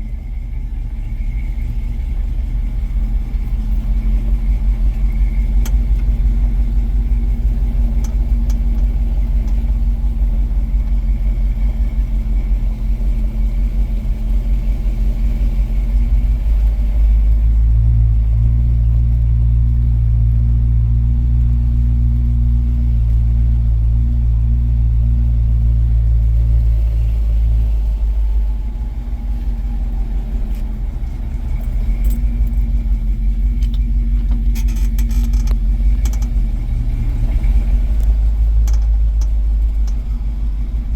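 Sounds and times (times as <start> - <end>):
engine idling: 0.0 - 40.9
clicks: 30.4 - 36.5, 38.0 - 40.2.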